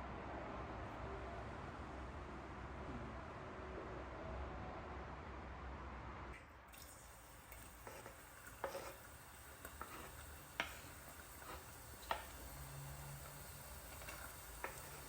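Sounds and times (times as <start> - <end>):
frying sizzle: 6.7 - 15.0
utensil tapping and scraping pan: 7.8 - 12.4, 13.9 - 15.0.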